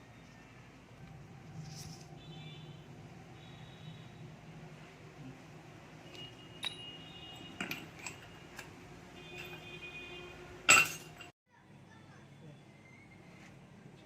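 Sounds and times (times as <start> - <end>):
metal tools clinking: 6.1 - 9.8, 10.7 - 11.3.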